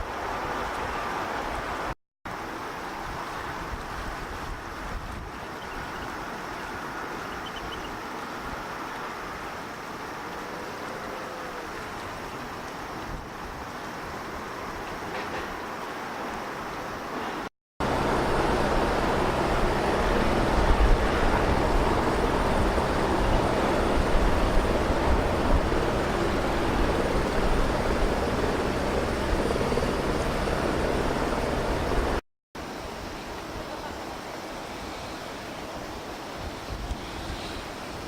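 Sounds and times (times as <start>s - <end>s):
wind on microphone: 3.0s - 6.4s, 17.8s - 32.2s, 36.3s - 38.0s
low engine drone: 17.8s - 32.2s.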